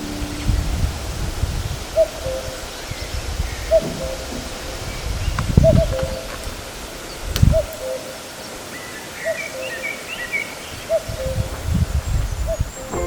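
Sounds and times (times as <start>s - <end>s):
wind rumble on microphone: 0.0s - 7.8s, 10.7s - 13.0s
cuckoo calling: 1.8s - 11.8s, 12.4s - 13.0s
small bird twittering: 2.0s - 11.8s.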